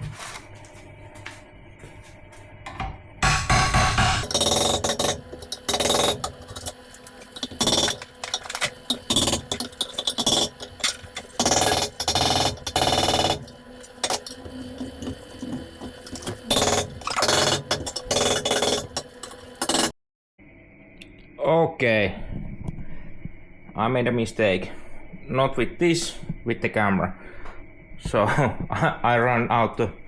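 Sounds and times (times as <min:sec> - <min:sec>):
tools striking and cutting metal: 0:02.7 - 0:19.9.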